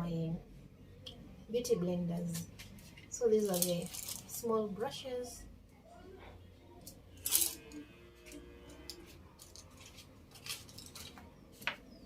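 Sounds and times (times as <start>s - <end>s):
cosmetic containers clinking: 3.0s - 4.4s, 6.9s - 11.4s.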